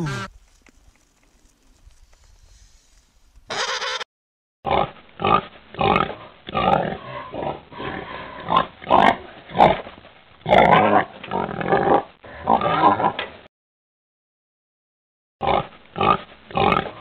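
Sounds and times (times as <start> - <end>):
pigs grunting: 0.0 - 0.3, 4.7 - 13.2, 15.4 - 17.0.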